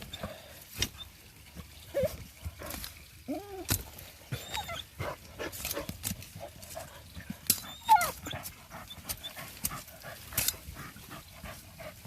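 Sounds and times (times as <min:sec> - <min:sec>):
dogs digging and scratching dirt: 0:00.0 - 0:12.0
dog whining: 0:01.9 - 0:02.2, 0:04.3 - 0:05.0, 0:07.6 - 0:09.4.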